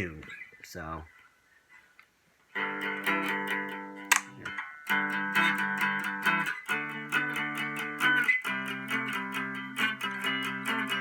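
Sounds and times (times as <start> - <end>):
electric guitar picked chords: 2.6 - 11.0.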